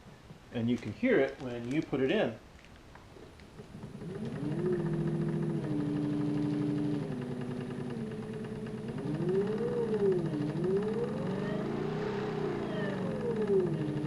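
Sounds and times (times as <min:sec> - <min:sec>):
fast ticking: 0:03.6 - 0:14.0
electric motor whine: 0:03.7 - 0:14.0.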